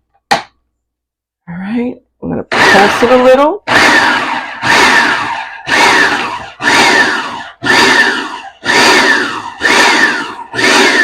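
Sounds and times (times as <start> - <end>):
food processor pulsing: 2.5 - 11.0.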